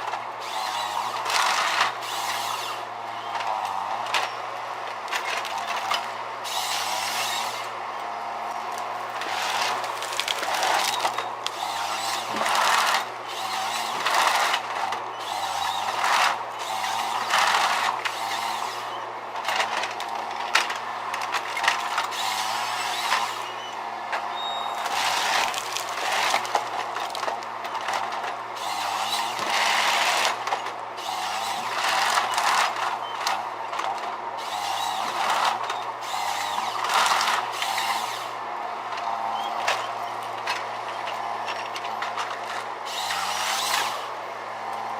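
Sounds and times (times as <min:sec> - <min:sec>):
harsh cutting noise: 0:00.0 - 0:02.9, 0:09.1 - 0:18.9, 0:24.8 - 0:27.3, 0:42.8 - 0:44.1.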